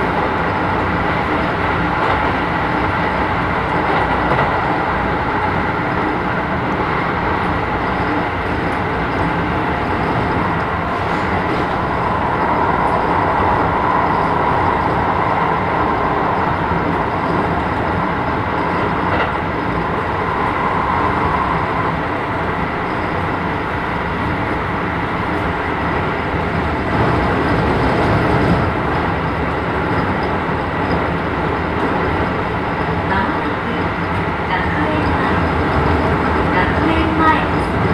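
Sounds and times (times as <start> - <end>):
train wheels rumbling on rails: 0.0 - 37.9
steady high tone: 3.1 - 25.2.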